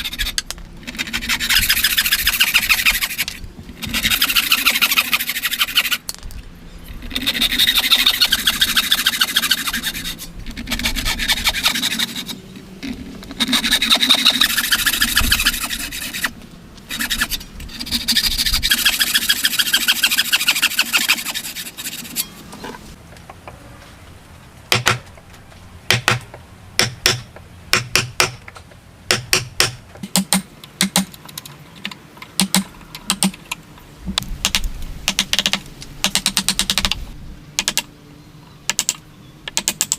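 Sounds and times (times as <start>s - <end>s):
hand saw cutting wood: 0.0s - 6.0s, 7.1s - 22.4s.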